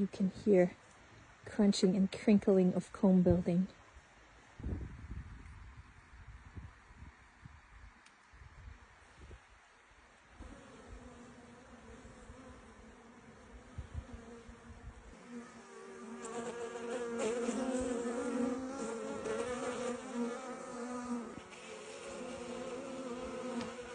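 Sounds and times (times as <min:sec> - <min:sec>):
bees buzzing: 0:10.4 - 0:23.9.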